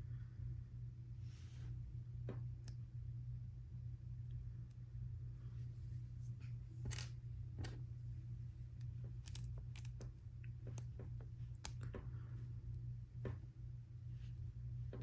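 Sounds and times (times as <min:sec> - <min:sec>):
steady low hum: 0:00.0 - 0:15.0
plastic toy bricks clicking: 0:09.2 - 0:09.9.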